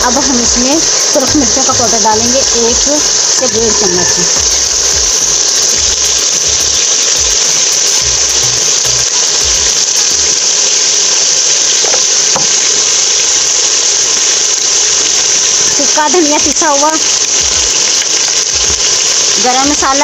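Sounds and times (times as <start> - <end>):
low thumps: 0.0 - 10.3
masala sizzling in a pot: 0.0 - 20.0.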